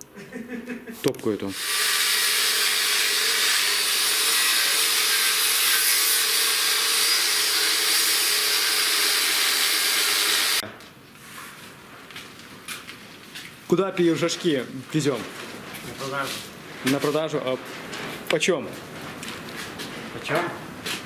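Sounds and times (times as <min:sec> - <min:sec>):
power tool cutting hiss: 0:01.5 - 0:10.6.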